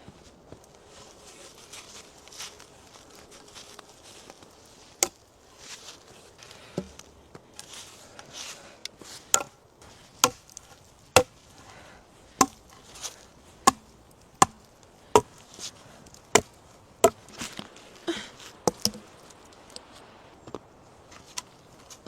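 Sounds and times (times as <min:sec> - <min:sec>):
axe chopping wood: 0:09.3 - 0:09.6, 0:10.2 - 0:11.4, 0:12.3 - 0:12.7, 0:13.6 - 0:15.4, 0:16.3 - 0:17.4, 0:18.6 - 0:19.1.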